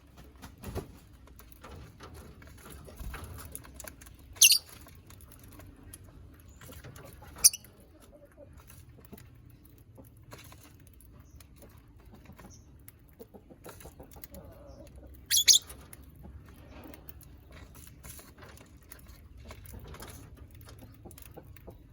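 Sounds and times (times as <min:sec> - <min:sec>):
birds pecking and cracking food: 0:00.0 - 0:21.9.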